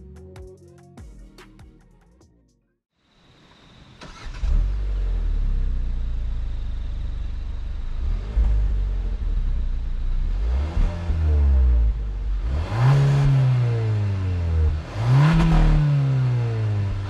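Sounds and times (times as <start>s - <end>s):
car engine accelerating: 4.0s - 17.0s.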